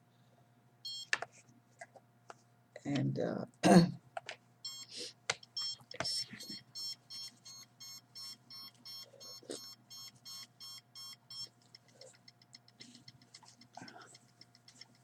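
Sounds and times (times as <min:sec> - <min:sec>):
signal detector beeping: 0:00.9 - 0:01.1, 0:04.6 - 0:11.5.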